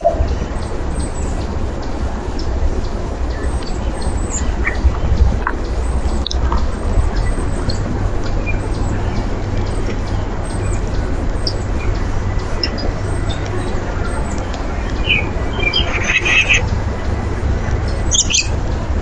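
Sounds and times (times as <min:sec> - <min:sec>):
low rumble and hiss: 0:00.0 - 0:19.0
small birds chirping: 0:00.0 - 0:19.0
loud bird call: 0:08.5 - 0:16.8.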